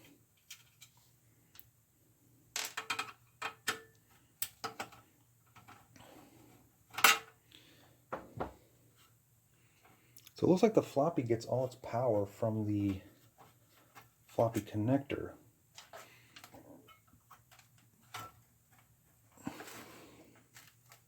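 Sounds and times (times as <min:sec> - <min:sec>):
metal and plastic parts clicking: 0:20.4 - 0:21.0.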